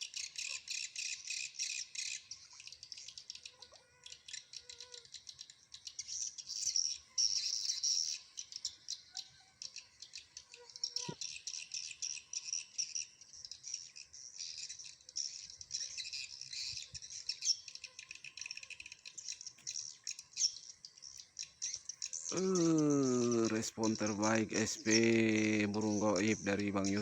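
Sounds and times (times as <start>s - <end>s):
swiftlets twittering and clicking: 22.1s - 27.0s.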